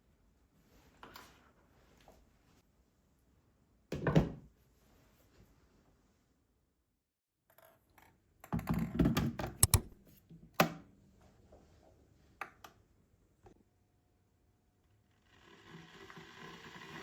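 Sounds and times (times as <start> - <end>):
sharp clicks and knocks: 9.4 - 10.0.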